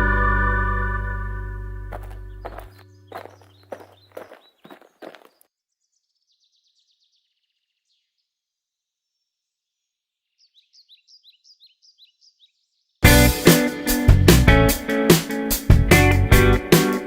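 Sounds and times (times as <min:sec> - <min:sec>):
faint bird chirps: 0:02.0 - 0:13.0
loud guitar music: 0:13.0 - 0:17.0.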